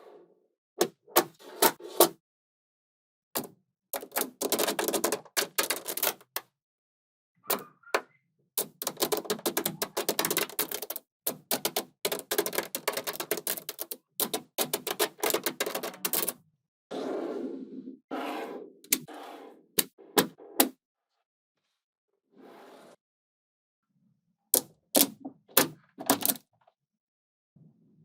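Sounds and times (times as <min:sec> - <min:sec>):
magnetic balls clicking together: 0:08.6 - 0:16.3.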